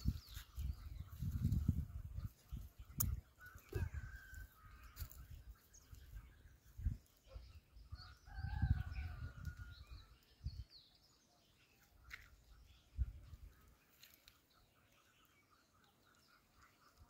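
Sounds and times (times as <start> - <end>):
wind and handling thumps on microphone: 0.0 - 3.3
birds calling and chirping: 0.0 - 17.0.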